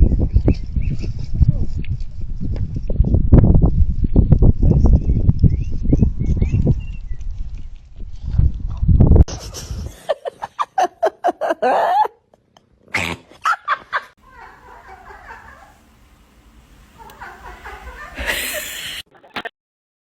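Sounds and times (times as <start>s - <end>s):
animal yipping: 17.0s - 19.5s.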